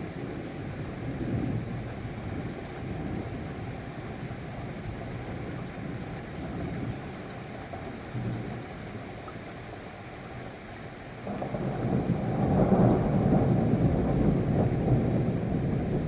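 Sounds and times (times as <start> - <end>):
steady rain: 0.0 - 16.0
low thunder rumble: 11.3 - 16.0.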